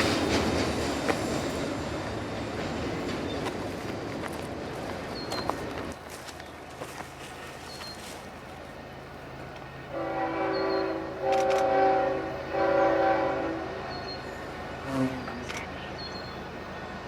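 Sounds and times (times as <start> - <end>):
train rumble: 0.0 - 17.0
locomotive air horn blasts: 9.9 - 13.9.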